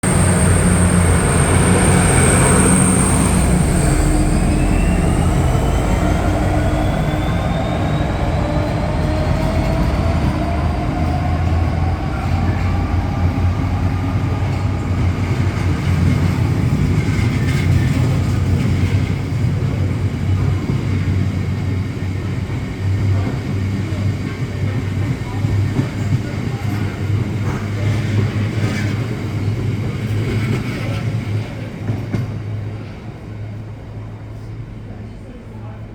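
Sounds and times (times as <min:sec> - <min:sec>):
thin rising tones: 0:00.0 - 0:14.0
freight wagons rumbling: 0:00.0 - 0:33.7
diesel locomotive engine: 0:00.0 - 0:35.9.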